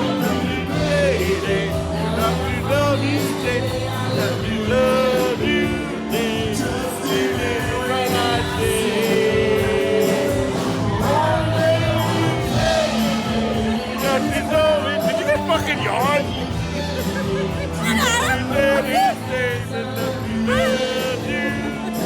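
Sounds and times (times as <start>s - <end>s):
live rock band playing: 0.0s - 22.0s
person singing: 16.8s - 22.0s.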